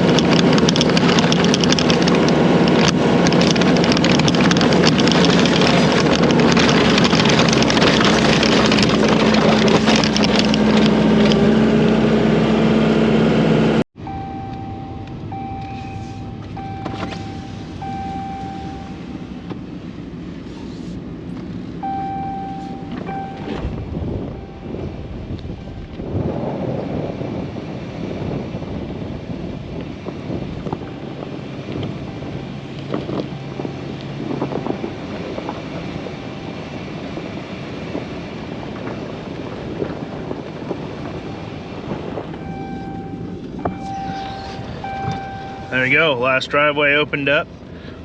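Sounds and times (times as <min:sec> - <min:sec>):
farm machine engine running: 0:00.0 - 0:19.6, 0:39.4 - 0:48.0
high beeps: 0:14.0 - 0:19.2, 0:21.8 - 0:24.9, 0:42.4 - 0:46.2.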